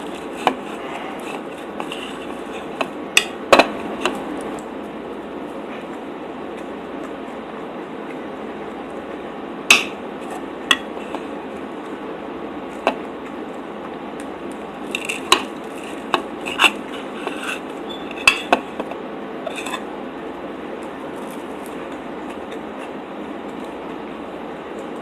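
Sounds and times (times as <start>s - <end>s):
steady background hiss: 0.0s - 25.0s
cutlery clinking on a plate: 18.1s - 18.6s.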